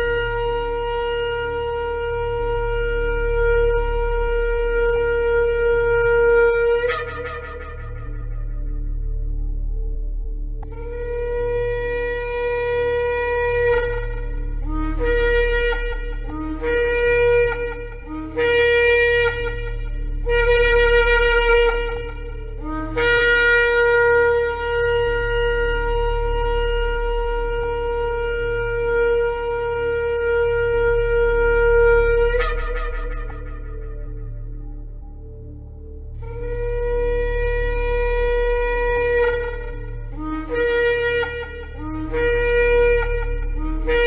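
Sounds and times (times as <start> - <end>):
ram's horn blasts: 10.6 - 44.0.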